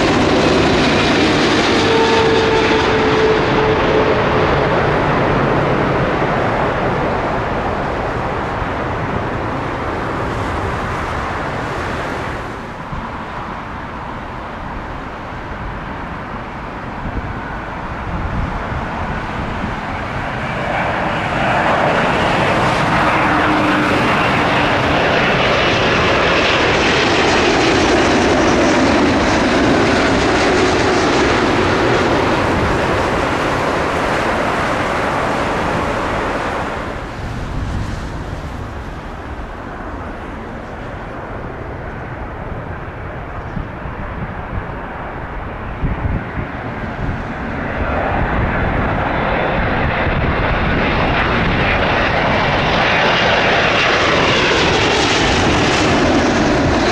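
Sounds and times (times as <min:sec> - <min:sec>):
jet whine sliding down in pitch: 0:00.0 - 0:13.6, 0:17.3 - 0:41.1
jet engines rumbling overhead: 0:00.0 - 0:56.9.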